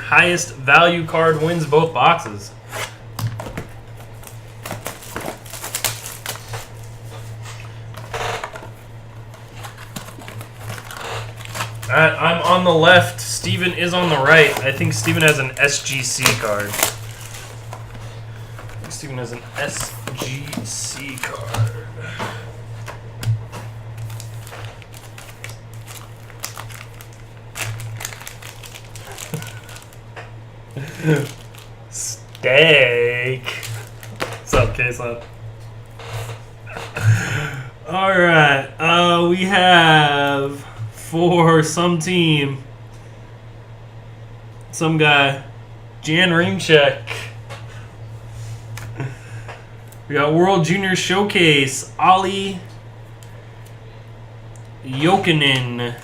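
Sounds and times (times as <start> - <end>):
steady low hum: 0.0 - 56.0
cardboard and plastic wrap rustling: 1.2 - 30.0, 30.8 - 35.2
plastic wrap tearing: 4.0 - 7.4, 9.5 - 18.0, 18.6 - 21.8, 23.9 - 30.0, 30.7 - 32.5, 33.4 - 34.6.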